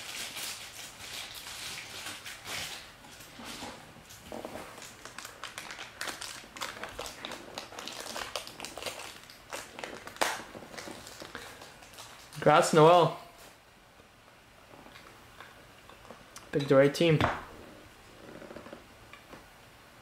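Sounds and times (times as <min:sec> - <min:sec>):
crinkling wrappers and plastic sleeves: 0:00.0 - 0:13.5.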